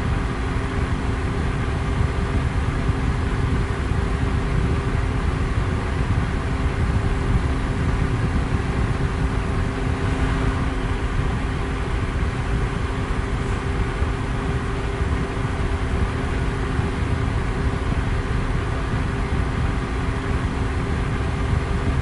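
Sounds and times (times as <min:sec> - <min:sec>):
electric fan whooshing air: 0:00.0 - 0:22.0
faint fan motor hum: 0:00.0 - 0:22.0.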